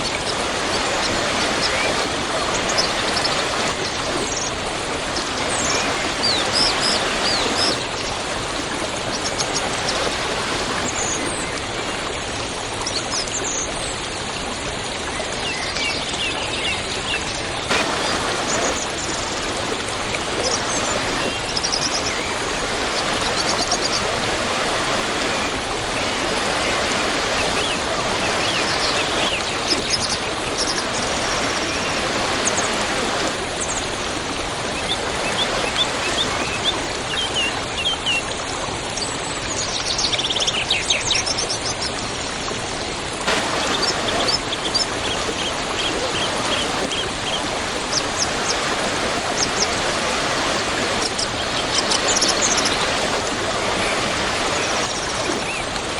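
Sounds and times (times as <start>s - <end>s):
small birds chirping: 0.0s - 11.9s, 15.5s - 37.6s
waterfall rushing: 0.0s - 14.6s, 15.4s - 38.4s, 42.4s - 55.9s.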